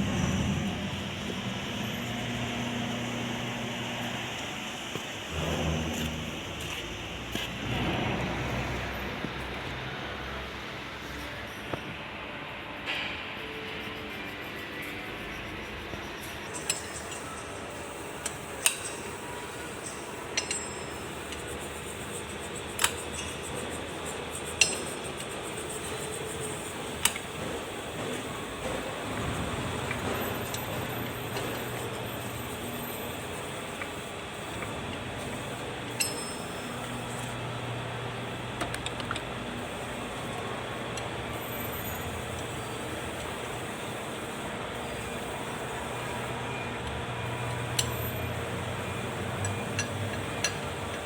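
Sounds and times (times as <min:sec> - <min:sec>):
steady background noise: 0:00.0 - 0:51.0
tools clinking on metal: 0:16.5 - 0:17.6, 0:18.2 - 0:21.5, 0:24.6 - 0:25.3, 0:35.9 - 0:37.3, 0:49.4 - 0:51.0.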